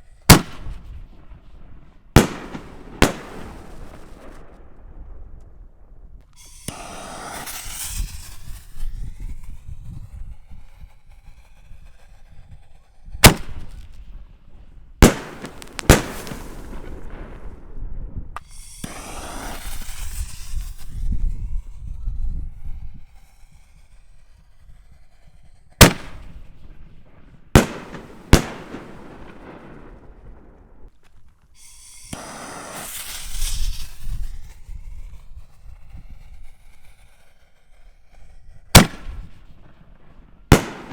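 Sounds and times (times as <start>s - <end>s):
rushing crackling firework effects: 0.0s - 40.9s
firework shell bangs: 6.4s - 8.2s, 15.0s - 17.6s, 40.5s - 40.9s.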